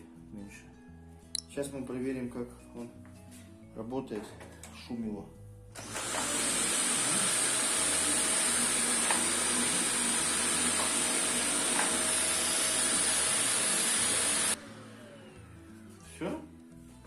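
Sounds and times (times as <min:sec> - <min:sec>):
vacuum cleaner running: 0:05.8 - 0:15.7.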